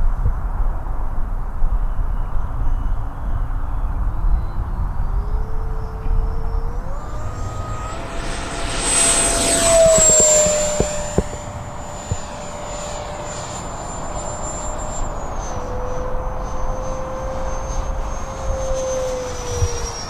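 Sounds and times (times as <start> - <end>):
electric ducted fan whining: 4.5 - 20.0
model jet passing with rushing: 4.8 - 20.0.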